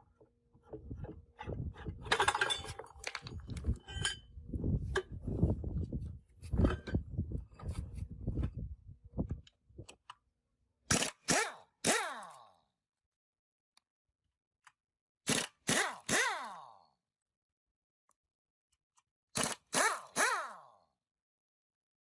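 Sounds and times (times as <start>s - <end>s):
tools knocking and scraping metal: 0.0s - 5.2s, 6.4s - 8.0s.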